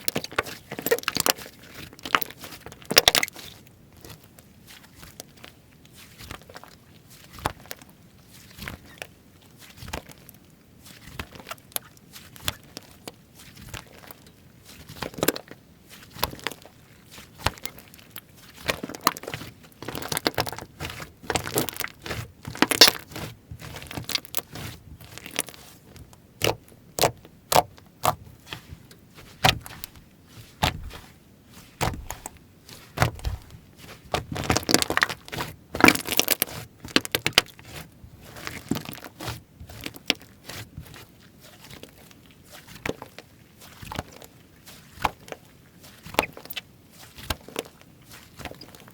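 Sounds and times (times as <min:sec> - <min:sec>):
hands squishing slime: 0:10.8 - 0:48.9.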